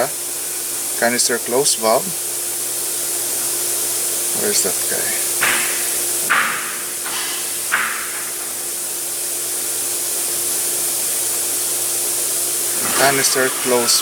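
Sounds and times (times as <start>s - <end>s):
smoke machine hissing: 0.0s - 14.0s.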